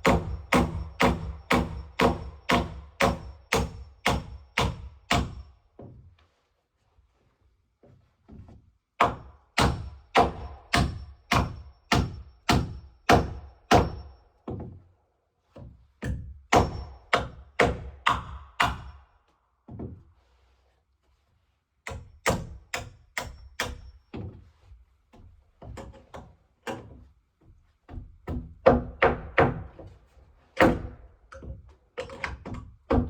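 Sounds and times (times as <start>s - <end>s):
hammer blows on timber: 0.0s - 5.6s.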